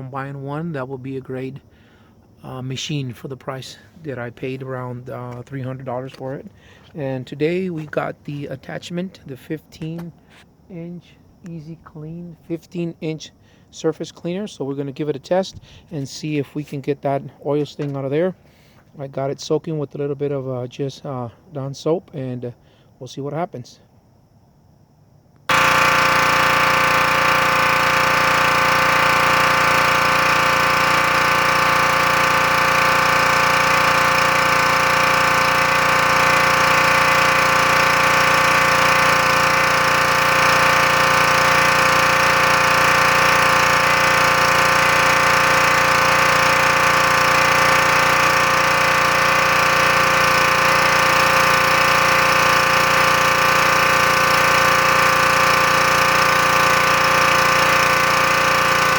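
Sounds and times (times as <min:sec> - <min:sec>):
pressure washer running: 0:25.5 - 0:58.9.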